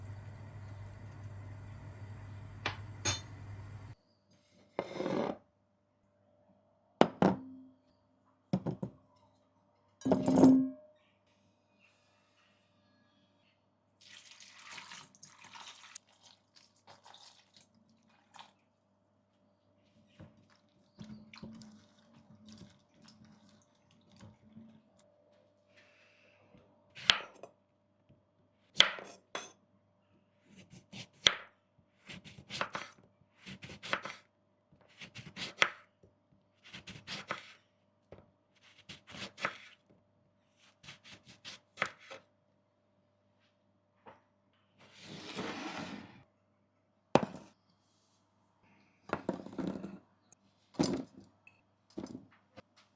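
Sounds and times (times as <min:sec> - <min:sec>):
kitchen knocks and clatters: 0:00.2 - 0:04.0, 0:08.6 - 0:09.0, 0:10.0 - 0:10.9, 0:49.1 - 0:50.1, 0:50.7 - 0:52.7.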